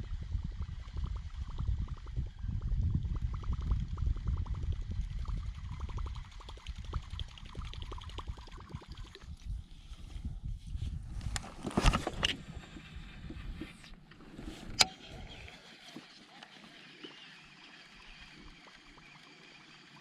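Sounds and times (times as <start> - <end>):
light rapid ticks: 0.1 - 9.2.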